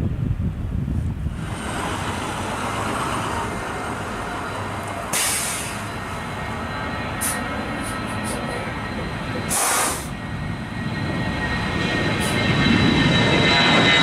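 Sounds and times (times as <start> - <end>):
aircraft engine roar with whine: 0.0 - 14.0
short high hiss: 5.1 - 5.8, 9.5 - 10.1.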